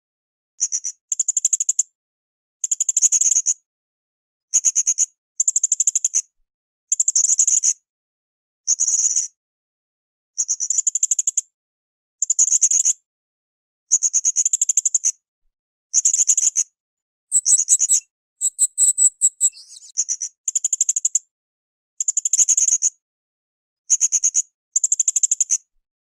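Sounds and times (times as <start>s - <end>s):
parrot chirping: 17.3s - 19.9s.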